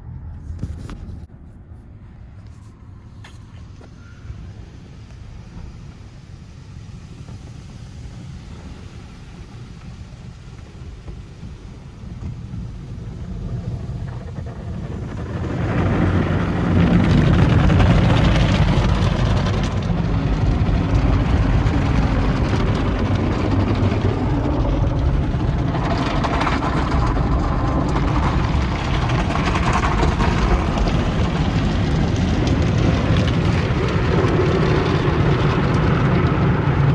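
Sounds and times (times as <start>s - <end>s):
car wash low rumble: 0.0s - 36.9s
car wash rushing noise: 1.9s - 36.9s.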